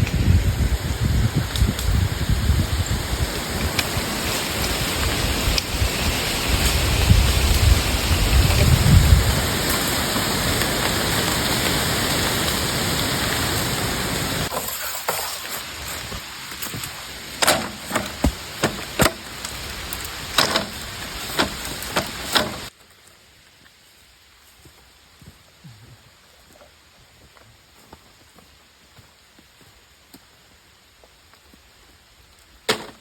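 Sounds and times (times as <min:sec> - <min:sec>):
heavy rain falling: 0:00.0 - 0:22.7.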